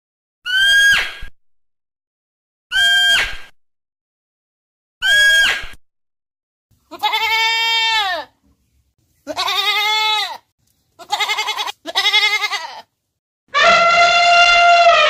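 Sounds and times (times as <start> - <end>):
goat bleating: 6.9 - 8.4, 9.2 - 12.9, 13.5 - 15.0.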